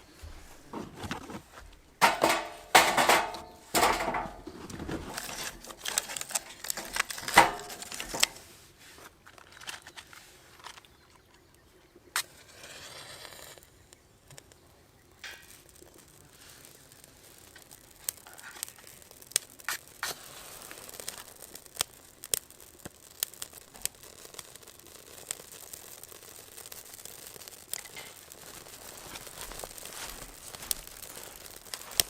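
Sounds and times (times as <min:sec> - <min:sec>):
rustling and crinkling gear: 0:00.0 - 0:14.6, 0:15.2 - 0:32.0
small knocks and clatters: 0:00.7 - 0:08.4, 0:09.0 - 0:11.5, 0:15.2 - 0:22.0, 0:26.6 - 0:32.0.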